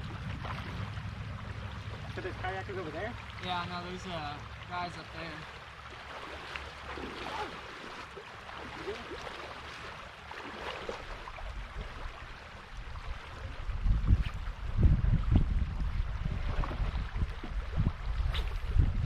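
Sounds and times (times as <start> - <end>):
wind rumbling on microphone: 0.0 - 4.6, 9.9 - 19.0
water trickling and lapping: 0.0 - 19.0.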